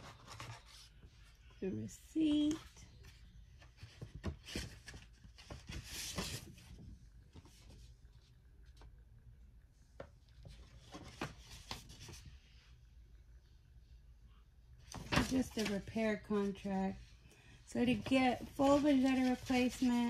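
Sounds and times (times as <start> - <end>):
paper rustling and crinkling: 0.0 - 1.4, 2.6 - 8.9, 10.4 - 12.4, 14.8 - 16.7, 17.8 - 20.0.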